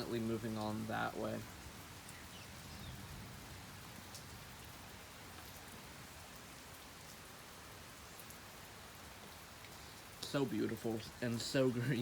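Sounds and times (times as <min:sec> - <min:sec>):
raindrop ticks: 0:00.0 - 0:02.9, 0:03.8 - 0:05.8, 0:09.0 - 0:12.0
light rain hissing: 0:00.0 - 0:12.0.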